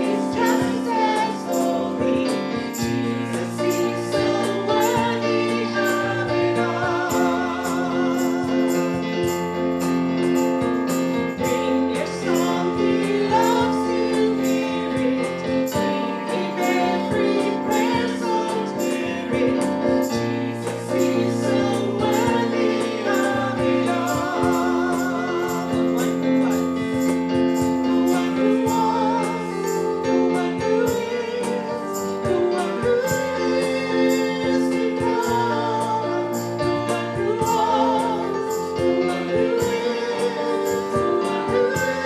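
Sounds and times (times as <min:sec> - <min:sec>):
woman singing lead: 0:00.0 - 0:09.0, 0:28.0 - 0:38.5
congregation singing: 0:00.0 - 0:42.0
piano accompaniment: 0:00.0 - 0:42.0.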